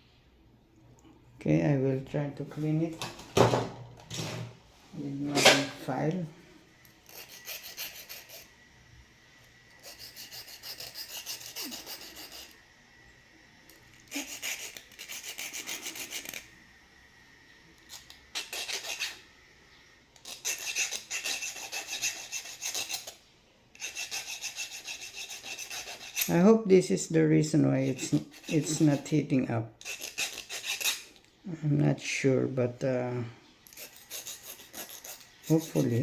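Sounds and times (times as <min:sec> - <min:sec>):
hand file scraping metal: 0:07.0 - 0:08.6, 0:09.7 - 0:12.6, 0:14.0 - 0:16.5, 0:17.9 - 0:19.2, 0:20.2 - 0:26.4, 0:27.7 - 0:31.2, 0:33.6 - 0:36.0.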